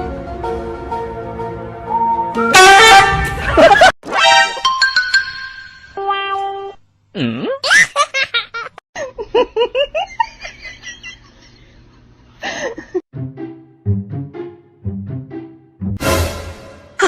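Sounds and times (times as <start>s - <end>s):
person laughing hard: 3.4s - 4.0s.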